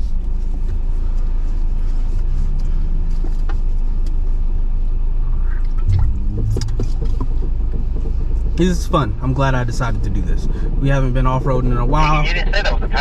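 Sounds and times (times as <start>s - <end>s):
engine and drivetrain rumble: 0.0s - 13.0s
knocks and rattles: 5.9s - 8.9s.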